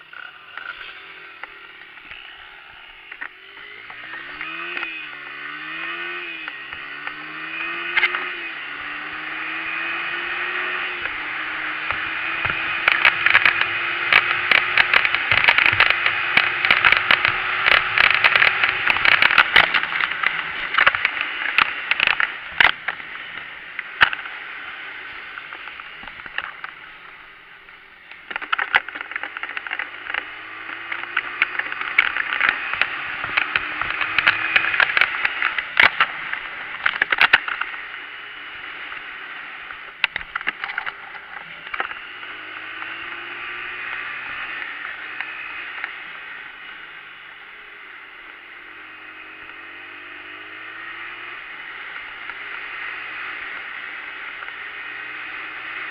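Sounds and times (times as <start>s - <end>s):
dirt bike engine revving: 0.0s - 27.3s, 28.2s - 46.9s, 47.6s - 55.9s
sharp clicks and knocks: 10.8s - 24.4s, 25.3s - 26.9s, 28.1s - 38.0s, 38.9s - 42.0s.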